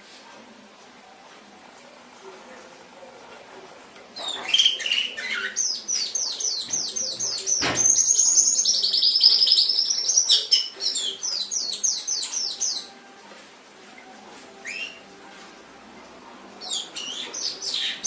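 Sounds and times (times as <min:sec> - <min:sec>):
canary singing: 0:04.0 - 0:18.0.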